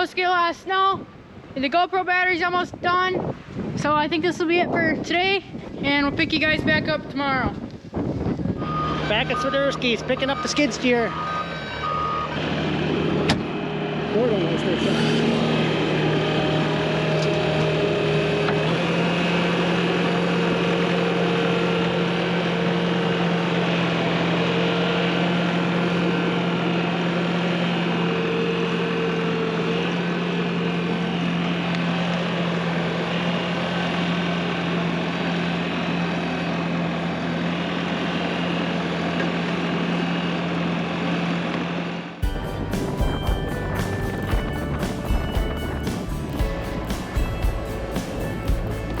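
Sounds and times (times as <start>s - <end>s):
vehicle engine running steadily: 2.5s - 49.0s.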